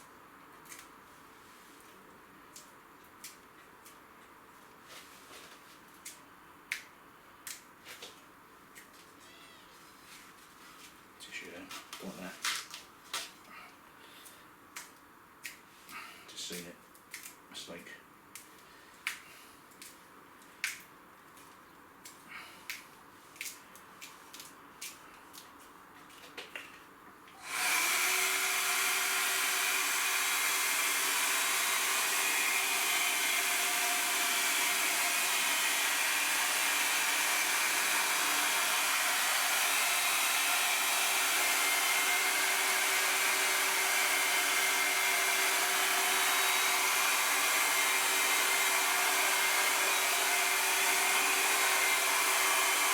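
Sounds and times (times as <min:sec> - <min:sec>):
hot-air blower running: 0:27.4 - 0:52.9.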